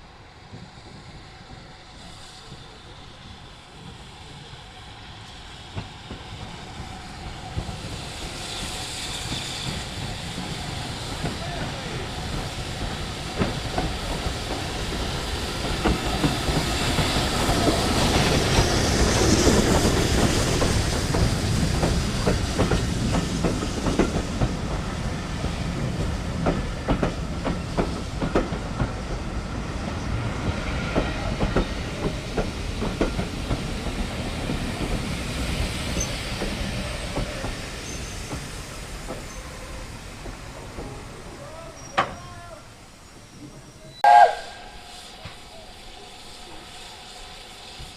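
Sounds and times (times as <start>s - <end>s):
train wheels clicking over rail joints: 5.7s - 29.3s, 30.4s - 42.4s.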